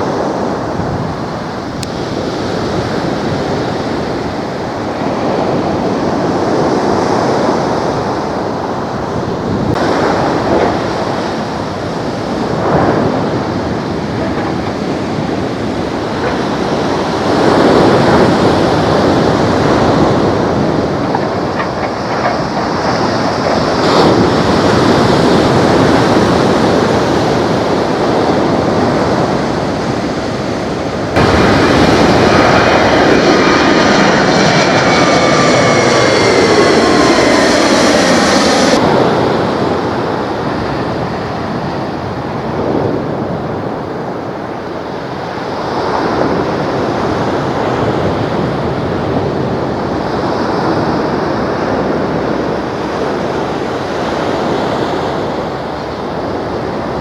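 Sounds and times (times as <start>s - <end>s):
distant jet airliner: 0.0s - 57.0s
jet airliner engines passing: 0.0s - 57.0s.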